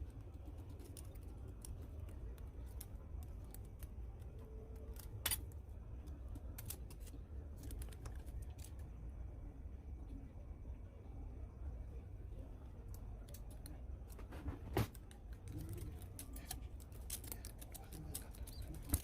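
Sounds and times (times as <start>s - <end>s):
low steady hum: 0.0s - 19.0s
light clicks and snips: 12.8s - 19.0s.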